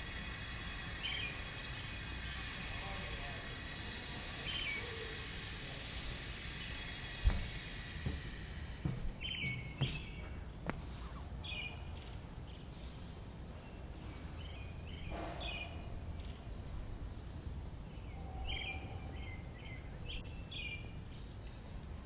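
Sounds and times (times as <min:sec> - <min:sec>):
small birds chirping: 0:05.9 - 0:12.8
sharp knocks: 0:07.2 - 0:11.2.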